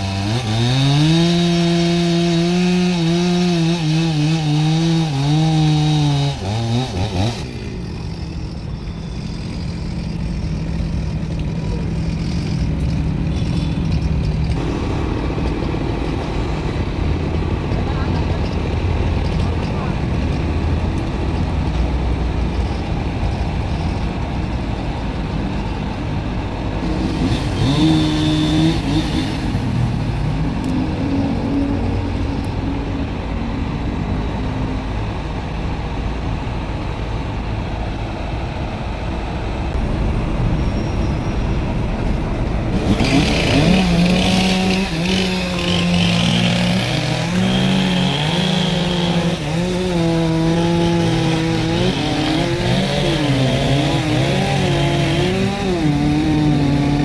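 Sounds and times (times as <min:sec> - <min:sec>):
chainsaw engine revving: 0:00.0 - 0:16.6, 0:26.8 - 0:29.9, 0:42.7 - 0:57.0.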